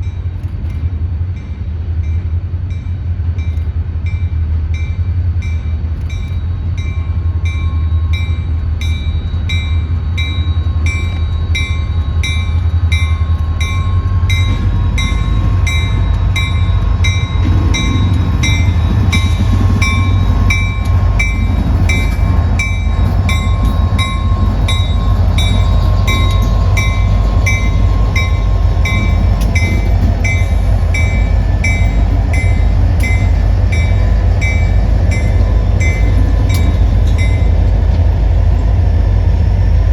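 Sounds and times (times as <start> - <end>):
train rumbling past: 0.0 - 39.9
high ringing bell: 6.8 - 37.6.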